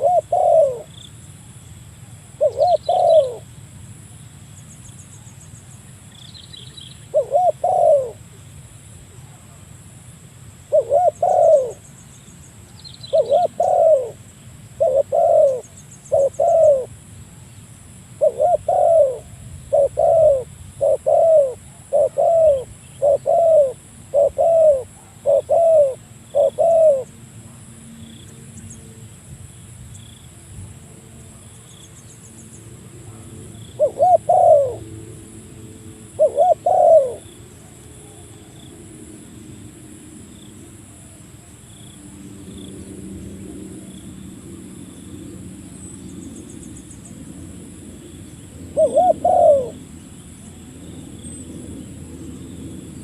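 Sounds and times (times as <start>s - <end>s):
dove cooing: 0.0s - 1.0s, 2.4s - 3.5s, 7.1s - 8.2s, 10.7s - 11.8s, 13.1s - 14.2s, 14.8s - 16.9s, 18.2s - 27.2s, 33.0s - 38.6s, 48.6s - 49.9s
high insect trill: 0.0s - 53.0s.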